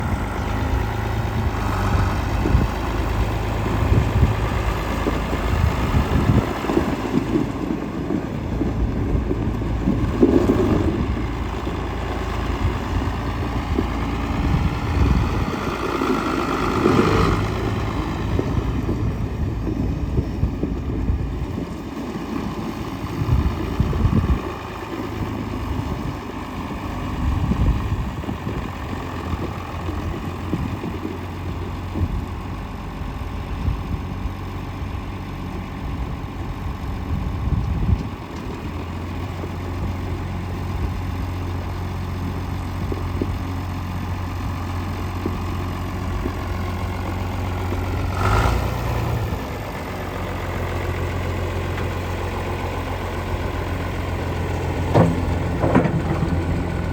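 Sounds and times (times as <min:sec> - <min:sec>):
wind buffeting microphone: 0:00.0 - 0:35.0, 0:35.7 - 0:41.4
diesel tractor engine idling: 0:00.0 - 0:56.9.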